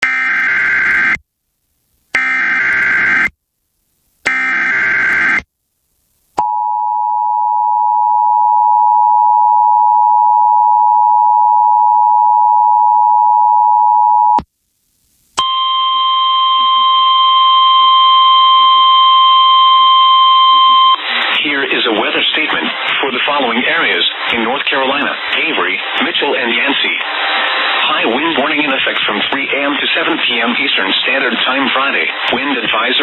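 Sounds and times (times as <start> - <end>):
two-tone attention signal: 15.4 - 21.0.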